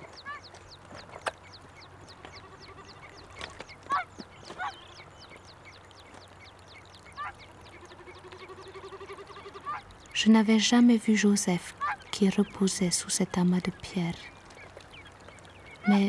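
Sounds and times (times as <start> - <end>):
birds chirping high: 0.0 - 16.0.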